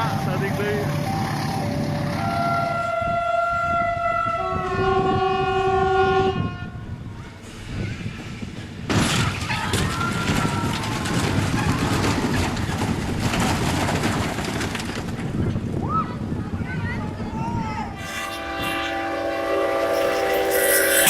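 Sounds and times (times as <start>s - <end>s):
train rushing and rattling past: 0.0s - 5.3s, 7.0s - 9.5s, 17.8s - 21.0s
train horn chord: 2.1s - 6.4s, 18.0s - 21.0s.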